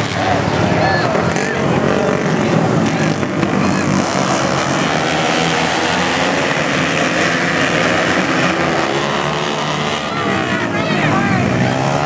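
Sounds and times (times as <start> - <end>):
racing motorcycle engines droning: 0.0 - 12.0.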